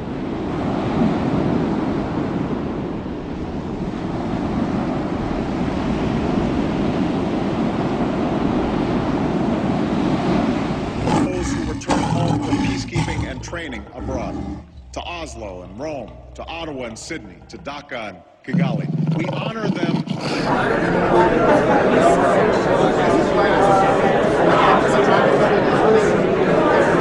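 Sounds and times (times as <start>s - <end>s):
ocean surf waves breaking: 0.0s - 11.8s
lion roaring: 10.9s - 20.7s.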